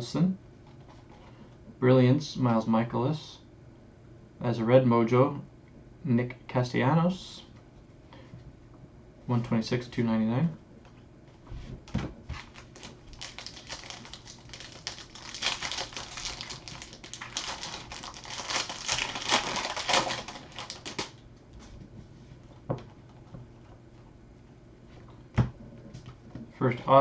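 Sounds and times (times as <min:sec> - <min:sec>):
foil wrappers crackling: 0:12.4 - 0:21.2.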